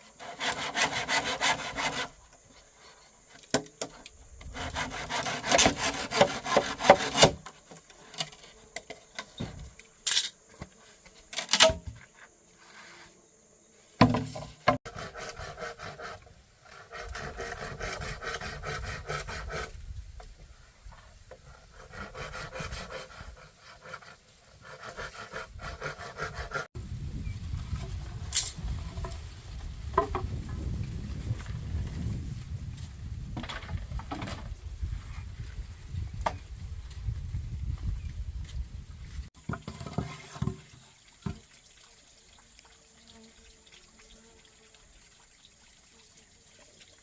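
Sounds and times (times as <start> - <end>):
hand saw cutting wood: 0.0 - 9.4, 14.0 - 19.8, 21.3 - 26.7.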